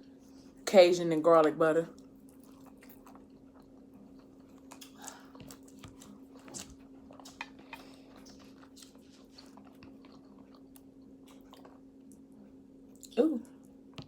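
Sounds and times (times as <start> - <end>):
steady low hum: 0.0 - 14.0
person chewing: 2.0 - 12.2.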